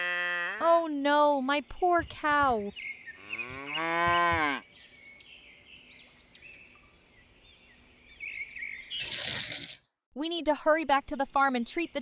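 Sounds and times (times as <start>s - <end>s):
cow mooing: 3.2s - 4.6s.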